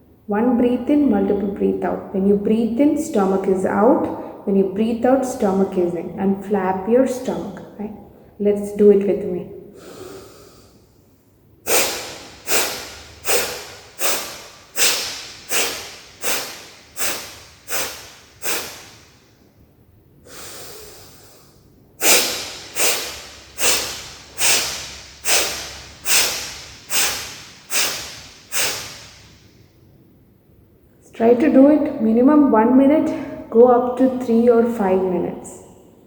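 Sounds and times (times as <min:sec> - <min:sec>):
soft in-breath: 0:04.1 - 0:04.4, 0:09.7 - 0:11.0, 0:11.7 - 0:19.3, 0:20.3 - 0:29.6
woman's forceful nasal exhalations: 0:09.7 - 0:10.8, 0:11.7 - 0:19.3, 0:20.2 - 0:29.5.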